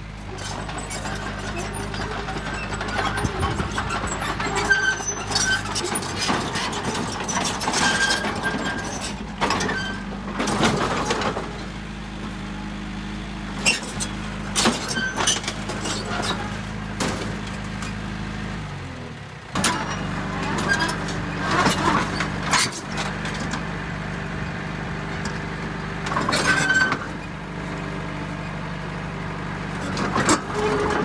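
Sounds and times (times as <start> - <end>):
diesel machinery running: 0.0 - 31.0
short high squeals: 0.4 - 6.1.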